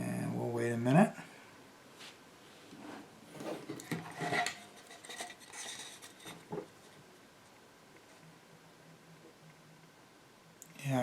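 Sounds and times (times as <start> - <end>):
small objects scraping and clicking: 3.5 - 6.6.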